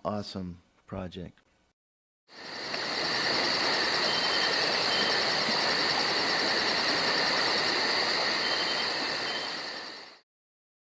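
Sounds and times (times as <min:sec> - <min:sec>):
insect pulsed chirp: 0:02.3 - 0:10.2
insects trilling: 0:02.3 - 0:10.2.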